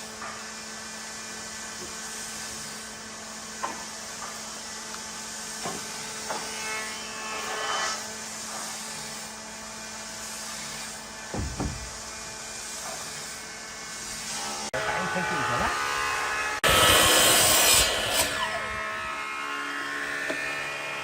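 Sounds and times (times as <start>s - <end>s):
light knocks on wood: 11.3s - 11.9s.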